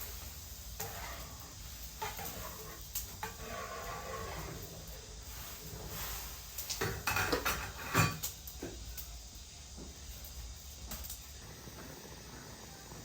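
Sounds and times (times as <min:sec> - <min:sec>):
cookware and utensils clattering: 0:00.8 - 0:04.9, 0:05.5 - 0:08.7.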